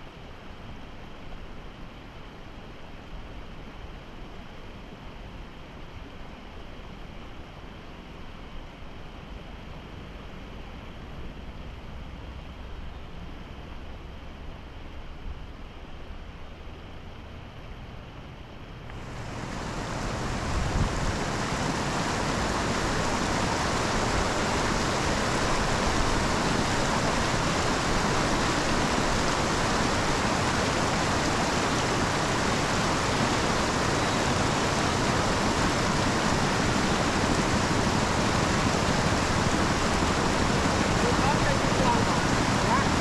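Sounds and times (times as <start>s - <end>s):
water rushing: 18.9s - 43.0s.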